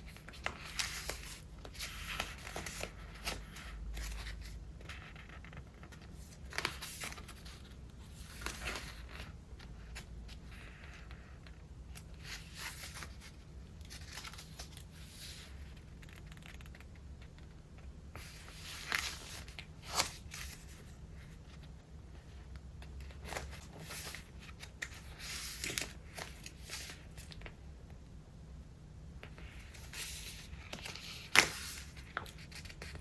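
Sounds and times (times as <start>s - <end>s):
paper rustling and crinkling: 0.0s - 17.5s, 18.2s - 27.6s, 29.2s - 33.0s
page flips: 0.1s - 9.7s, 18.2s - 20.9s, 23.0s - 27.5s, 29.2s - 33.0s.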